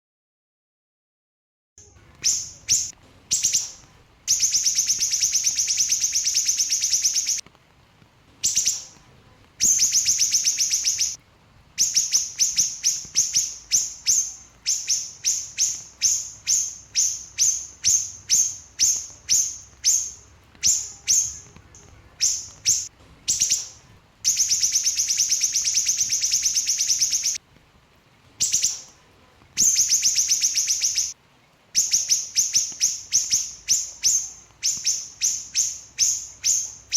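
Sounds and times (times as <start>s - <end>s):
songbird trilling chatter: 2.2s - 7.4s, 9.6s - 11.2s, 11.8s - 27.4s, 29.6s - 31.2s.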